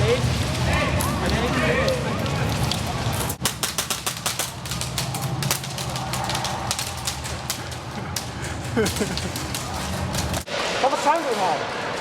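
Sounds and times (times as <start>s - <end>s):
airsoft guns firing: 3.4s - 7.8s.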